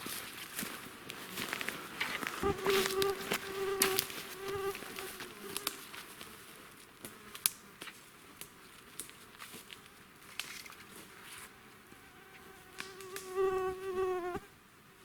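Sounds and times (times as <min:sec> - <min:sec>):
footsteps in dry undergrowth: 0:00.0 - 0:11.5
flying insect buzzing: 0:02.4 - 0:05.8, 0:11.8 - 0:14.5.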